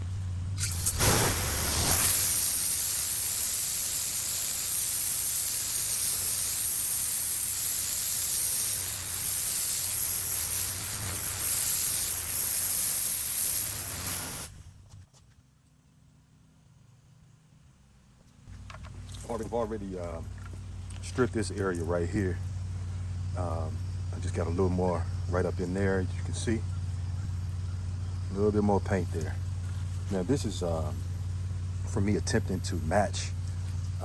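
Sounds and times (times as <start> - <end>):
pressure washer spraying concrete: 0.6 - 14.6.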